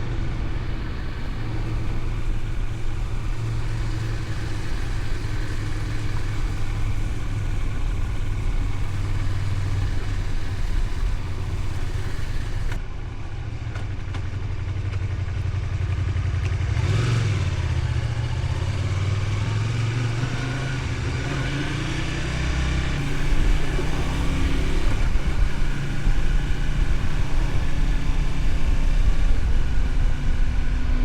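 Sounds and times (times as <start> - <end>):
rushing wind noise: 0.0 - 12.9, 20.2 - 31.0
motorcycle engine running: 0.0 - 31.0.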